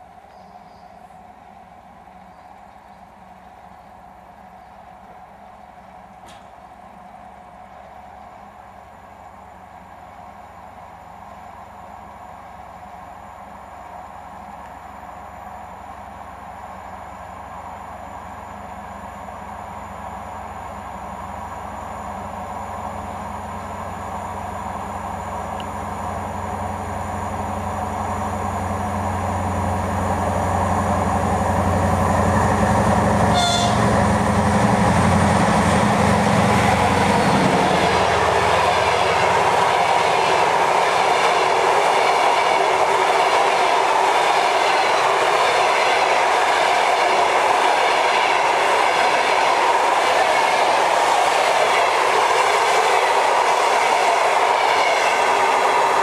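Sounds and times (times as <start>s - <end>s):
train wheels rumbling on rails: 0.0s - 8.8s, 22.1s - 56.0s
diesel locomotive engine drone: 0.0s - 56.0s.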